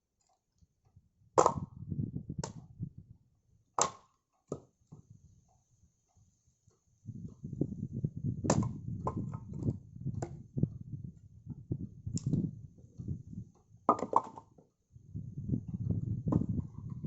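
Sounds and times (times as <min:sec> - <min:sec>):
wood pieces knocking: 0:13.9 - 0:14.6.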